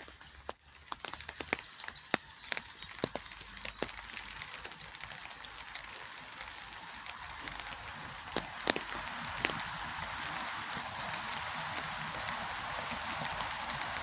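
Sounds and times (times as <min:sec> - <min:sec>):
rain hissing: 0:00.0 - 0:14.0
raindrops ticking: 0:00.0 - 0:14.0.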